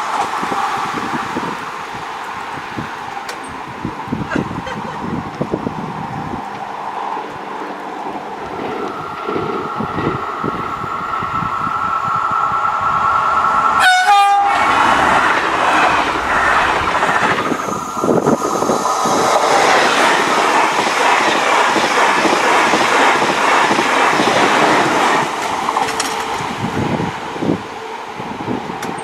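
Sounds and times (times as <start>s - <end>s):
train wheels rushing and clattering: 0.0s - 29.0s
train horn blast: 13.8s - 15.0s.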